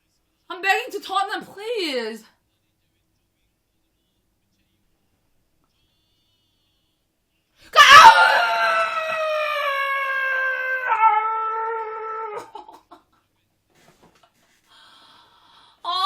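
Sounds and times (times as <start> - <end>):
woman screaming: 7.7 - 12.6.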